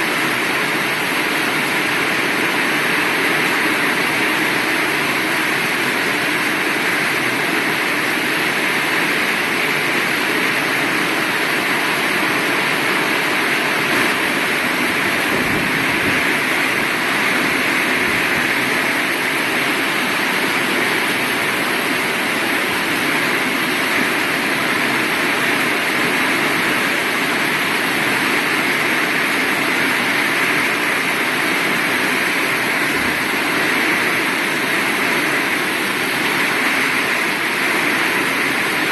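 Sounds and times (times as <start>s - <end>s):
heavy rain falling: 0.1s - 38.9s.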